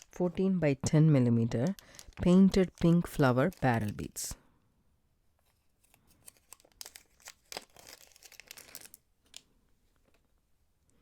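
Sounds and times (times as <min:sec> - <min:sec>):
plastic packet crinkling: 0:01.5 - 0:04.4, 0:05.8 - 0:09.5.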